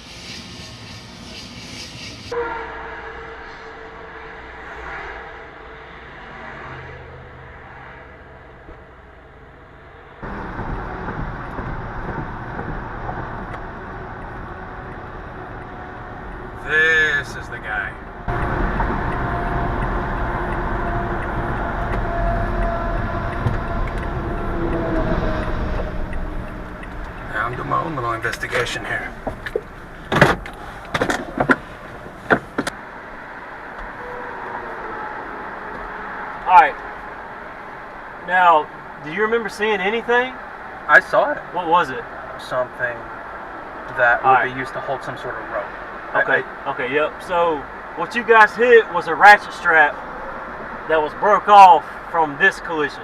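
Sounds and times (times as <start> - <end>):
road and wind noise: 0.0 - 53.0
steady low rumble: 8.8 - 32.7
sharp knocks and clunks: 10.3 - 13.6, 28.5 - 32.8.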